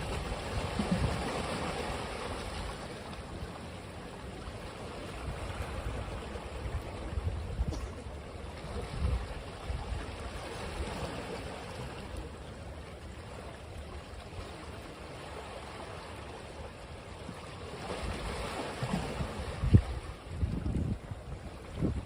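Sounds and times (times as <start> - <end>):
ocean surf washing on beach: 0.0 - 13.0
waves breaking: 0.0 - 22.0.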